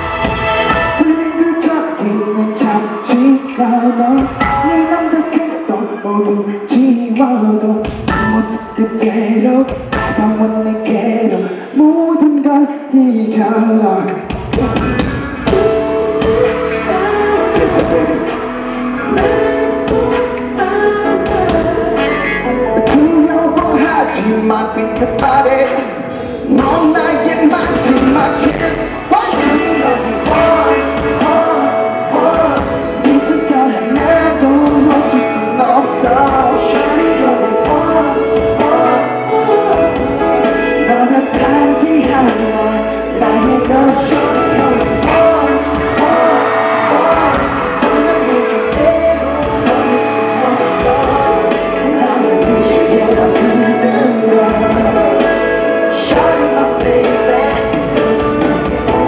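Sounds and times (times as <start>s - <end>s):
pop-rock song with singer and band: 0.0s - 59.0s.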